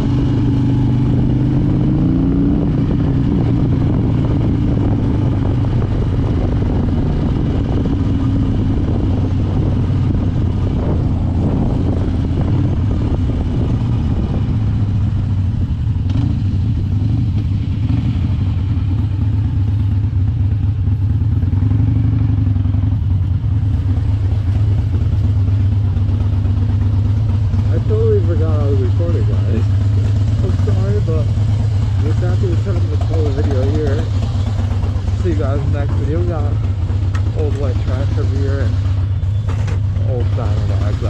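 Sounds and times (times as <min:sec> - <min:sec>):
motorcycle engine droning: 0:00.0 - 0:41.0.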